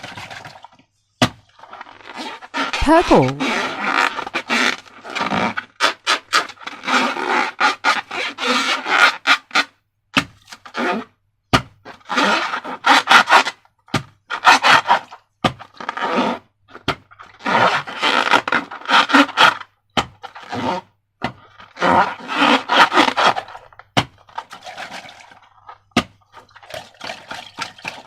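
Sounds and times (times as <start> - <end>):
slime squishing and rubbing: 1.6 - 4.2.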